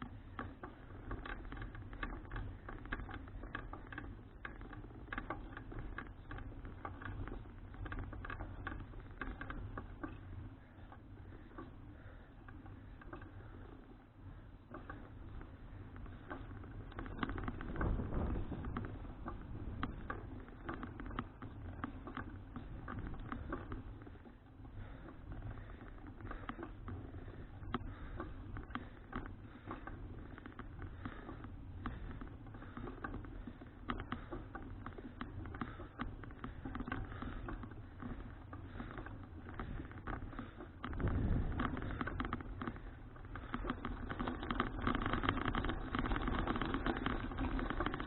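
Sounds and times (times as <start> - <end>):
bicycle rattling clicks: 0.0 - 48.0
road and wind noise: 16.7 - 21.1, 40.8 - 43.4.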